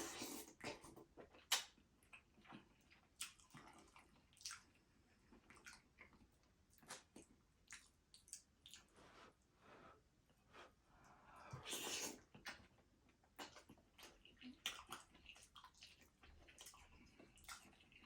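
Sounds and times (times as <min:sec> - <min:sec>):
lip smacks and mouth clicks: 0:00.3 - 0:02.6, 0:03.2 - 0:03.8.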